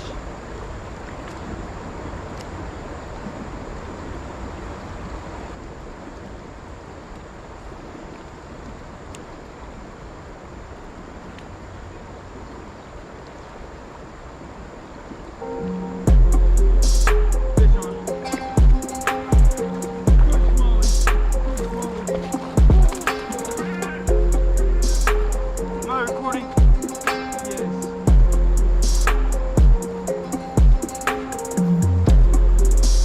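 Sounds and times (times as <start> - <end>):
river water rushing: 0.0 - 33.0
wind: 0.0 - 33.0
faint click: 8.6 - 9.3.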